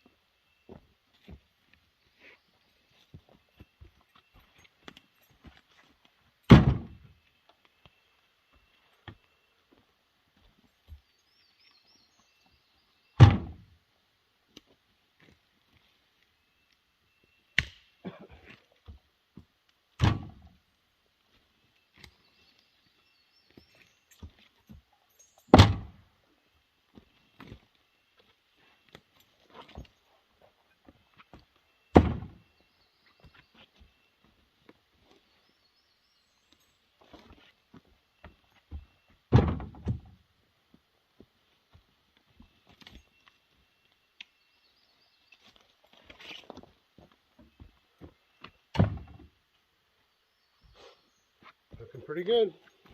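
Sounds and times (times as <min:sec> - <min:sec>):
firewood knocking and thudding: 0:06.5 - 0:07.1, 0:13.2 - 0:13.6, 0:20.0 - 0:20.6, 0:25.5 - 0:26.0, 0:31.9 - 0:32.4, 0:38.7 - 0:40.2, 0:48.7 - 0:49.3.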